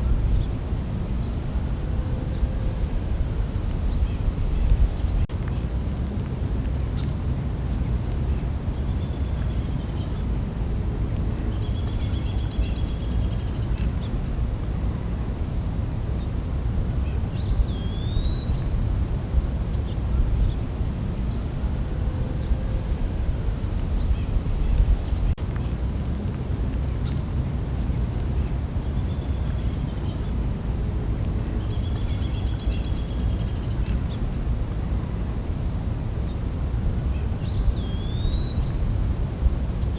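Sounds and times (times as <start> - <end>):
cricket chirps: 0.0 - 39.9.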